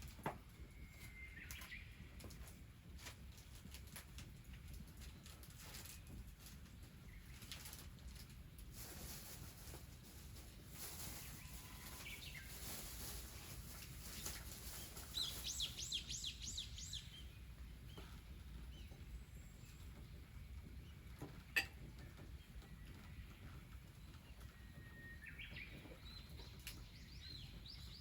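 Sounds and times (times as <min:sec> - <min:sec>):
small bird calling: 0:14.2 - 0:18.2.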